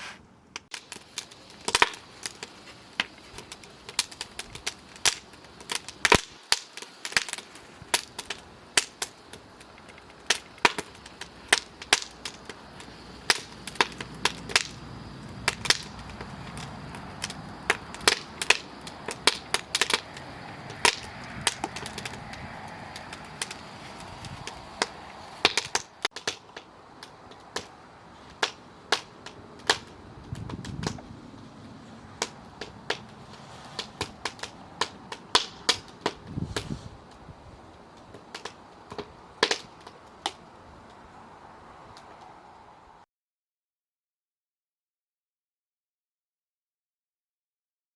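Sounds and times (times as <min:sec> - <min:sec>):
firewood crackling and popping: 0:00.6 - 0:42.4.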